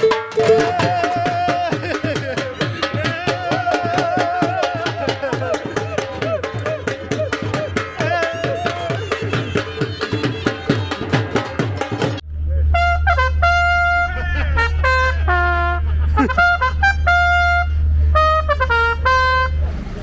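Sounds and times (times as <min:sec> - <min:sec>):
drum-backed tune: 0:00.0 - 0:12.2
trumpet playing slow melody: 0:12.7 - 0:19.6.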